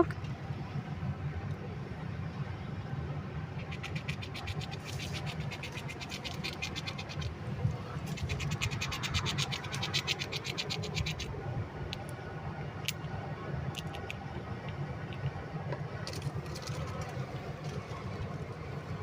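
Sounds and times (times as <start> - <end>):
squirrel gnawing nut shell: 3.5 - 7.4, 8.0 - 15.4.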